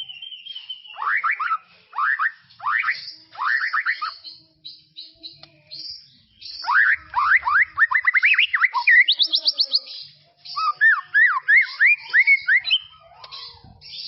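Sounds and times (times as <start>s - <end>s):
bird singing rising whistles: 0.0s - 4.2s.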